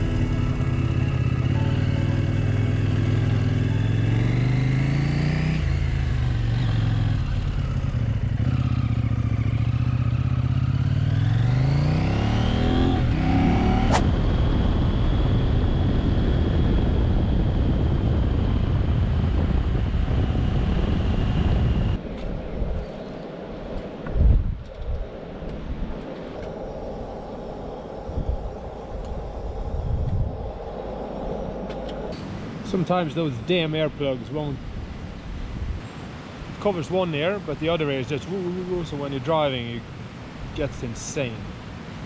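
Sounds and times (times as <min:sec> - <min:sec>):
motorcycle engine accelerating: 0:00.0 - 0:14.4
wind rushing over microphone: 0:13.1 - 0:32.6, 0:34.6 - 0:36.6.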